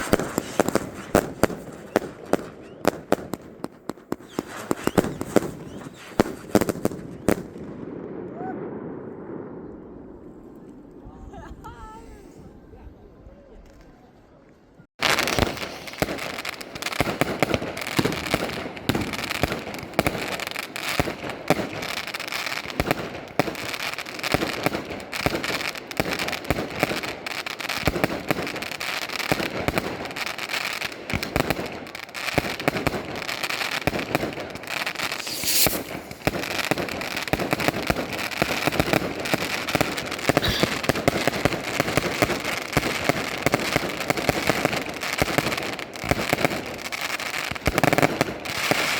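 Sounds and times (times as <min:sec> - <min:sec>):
fireworks bangs and crackles: 0:00.0 - 0:12.0, 0:14.9 - 0:48.9.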